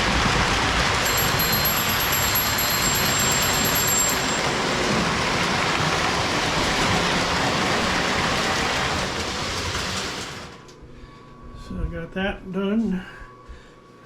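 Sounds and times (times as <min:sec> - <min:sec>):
toy train wheels rumbling on rails: 0:00.0 - 0:10.7.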